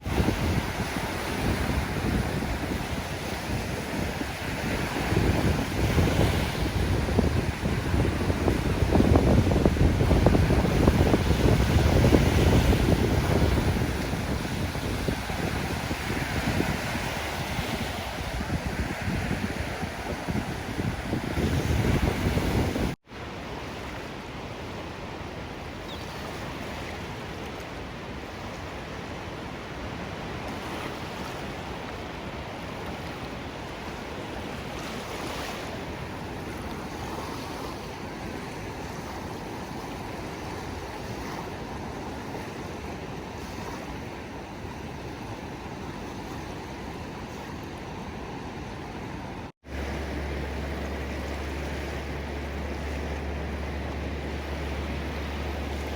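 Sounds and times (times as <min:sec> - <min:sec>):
surf hissing: 0:49.6 - 0:55.9.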